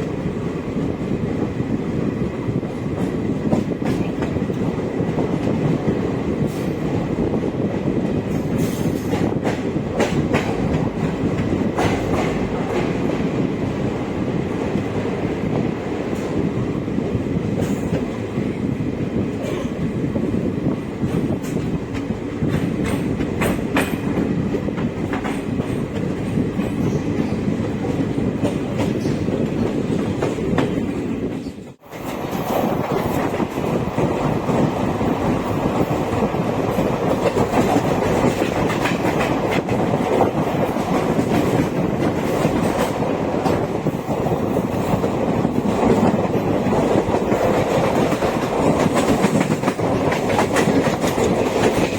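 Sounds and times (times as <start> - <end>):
train coaches rumbling: 0.0 - 51.9
wheels clicking over rail joints: 21.0 - 51.9.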